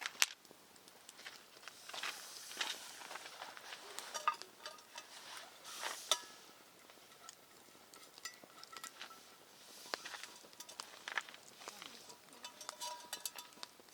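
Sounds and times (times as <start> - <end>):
light metallic clinks: 3.9 - 5.5, 6.1 - 9.4, 10.2 - 13.7.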